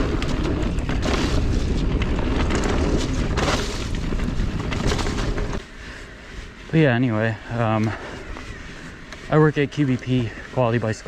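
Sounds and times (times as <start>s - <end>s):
wind buffeting microphone: 0.0s - 5.6s
mountain bike rattling over trail: 0.0s - 6.1s, 6.7s - 11.0s.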